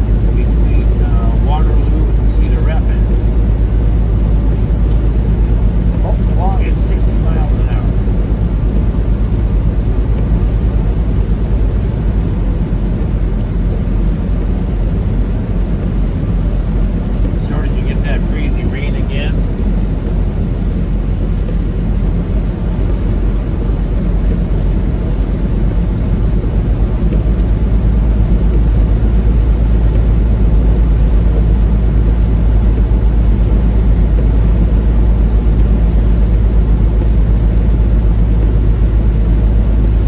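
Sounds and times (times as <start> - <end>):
semi truck engine and road noise: 0.0 - 40.0.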